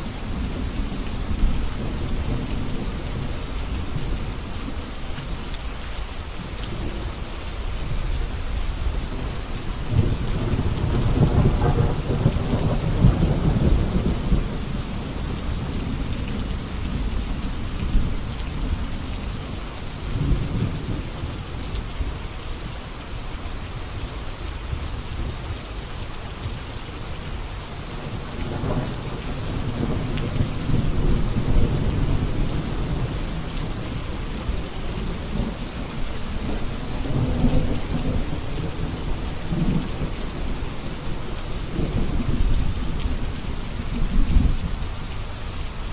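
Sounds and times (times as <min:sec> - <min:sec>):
steady rain falling: 0:00.0 - 0:45.9
low rolls of thunder: 0:08.9 - 0:18.8, 0:28.0 - 0:45.0.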